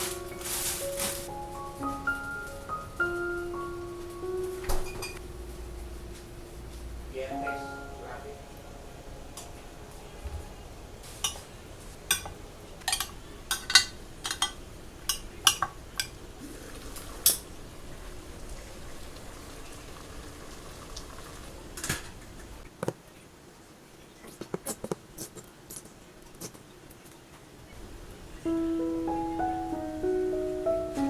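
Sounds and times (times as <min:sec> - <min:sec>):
low steady hum: 0:00.0 - 0:22.6
dishes and cutlery clinking: 0:04.4 - 0:05.2, 0:11.0 - 0:16.2.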